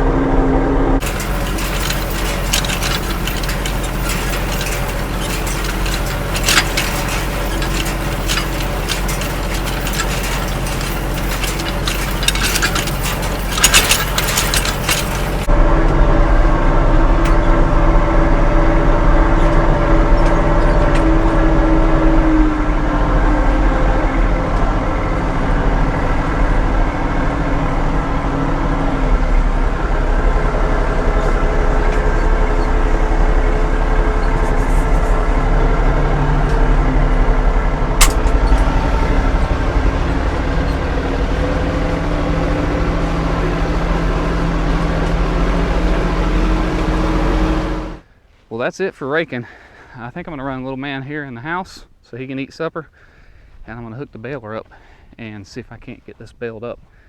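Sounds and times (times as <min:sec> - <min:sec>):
tractor engine running: 0:00.0 - 0:48.0
clattering and rattling: 0:01.0 - 0:15.5, 0:29.7 - 0:36.9, 0:37.9 - 0:48.0.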